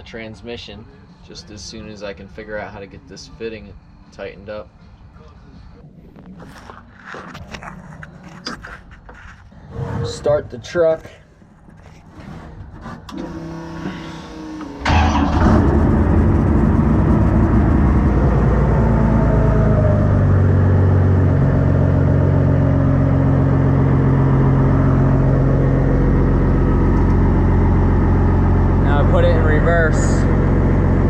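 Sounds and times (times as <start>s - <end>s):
diesel engine starting and idling: 12.6s - 31.0s.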